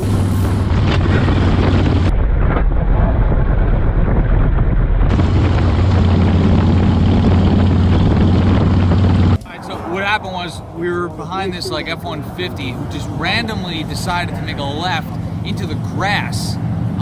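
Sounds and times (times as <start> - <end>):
wind noise on microphone: 0.0 - 13.8
motorcycle engine running: 5.1 - 9.4.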